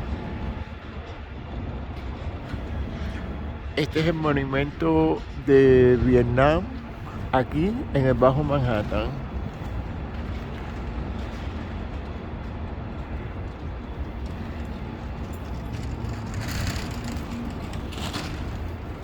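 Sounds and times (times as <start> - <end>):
low traffic rumble: 0.0 - 19.0.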